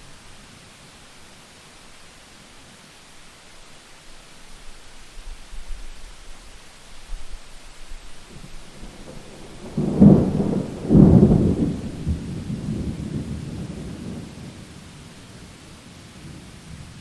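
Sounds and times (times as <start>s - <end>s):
steady rain: 0.0s - 17.0s
thunder rumbling: 8.3s - 17.0s.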